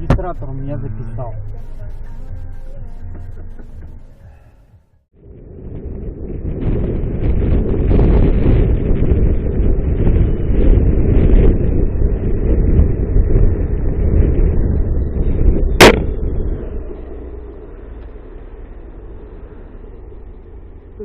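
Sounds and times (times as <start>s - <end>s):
wind and road rumble: 0.0s - 21.0s
sharp bang: 15.8s - 16.3s.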